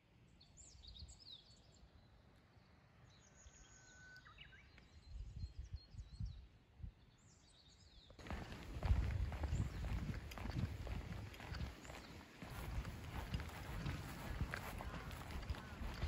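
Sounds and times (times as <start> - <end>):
birds chirping and whistling: 8.3 - 16.0.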